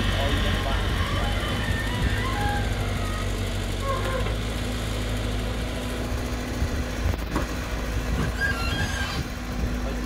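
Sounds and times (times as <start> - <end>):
excavator diesel engine running: 0.0 - 10.0
faint machine squeaks: 8.2 - 9.3.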